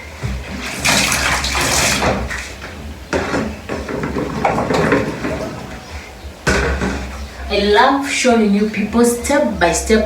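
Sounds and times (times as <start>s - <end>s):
water running and splashing: 0.4s - 7.3s.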